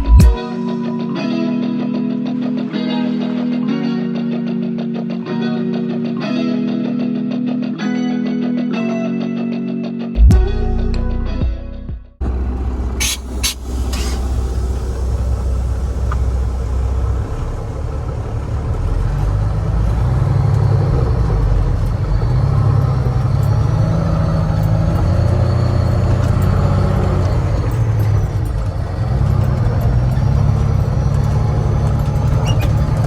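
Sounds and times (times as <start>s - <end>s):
heavy vehicle engine droning: 12.2s - 33.0s.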